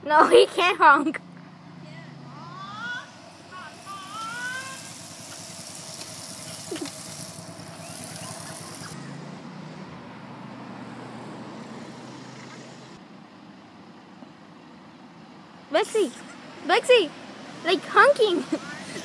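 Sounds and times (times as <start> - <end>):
car engine running: 0.5 - 10.4.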